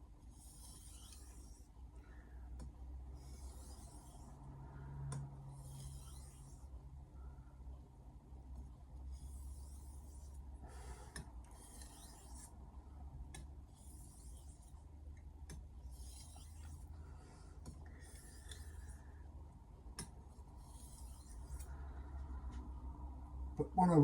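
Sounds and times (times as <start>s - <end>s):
knife scraping on whetstone: 0.3s - 1.7s, 3.2s - 4.4s, 5.5s - 6.7s, 9.1s - 10.4s, 11.5s - 12.6s, 13.7s - 14.8s, 15.8s - 16.9s, 18.0s - 19.1s, 20.6s - 21.7s.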